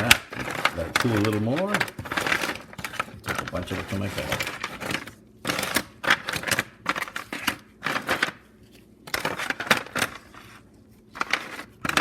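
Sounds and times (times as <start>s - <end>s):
peanut brittle clattering and cracking: 0.0s - 8.4s, 11.2s - 12.0s.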